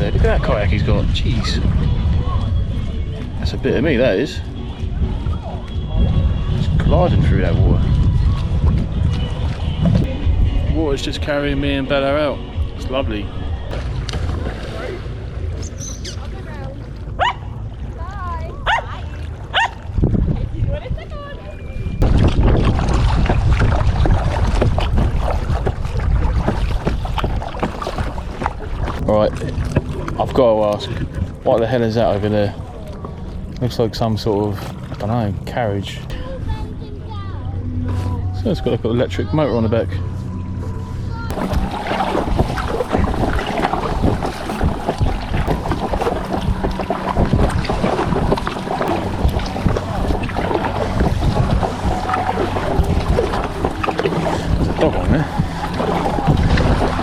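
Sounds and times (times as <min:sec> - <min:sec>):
wind on microphone: 0:00.0 - 0:16.4, 0:17.1 - 0:33.6, 0:34.5 - 0:57.0
water splashing around kayak: 0:00.0 - 0:57.0
paddle splashes: 0:04.0 - 0:10.3, 0:13.6 - 0:20.1, 0:22.0 - 0:33.7, 0:41.3 - 0:57.0.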